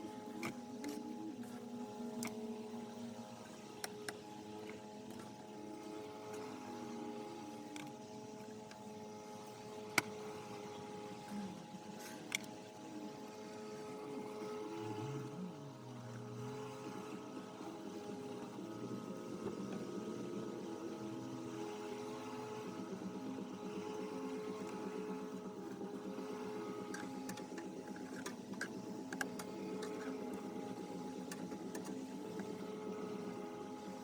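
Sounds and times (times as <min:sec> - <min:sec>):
small motor humming: 0:00.0 - 0:34.0.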